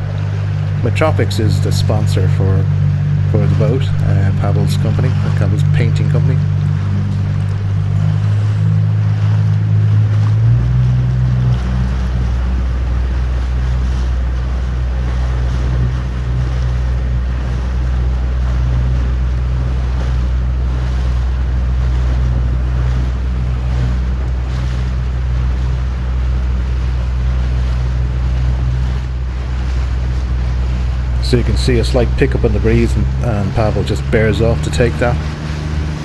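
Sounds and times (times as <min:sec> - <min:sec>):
motorboat engine humming: 0:00.0 - 0:36.0
water rushing along hull: 0:00.0 - 0:36.0
wind buffeting microphone: 0:00.0 - 0:36.0.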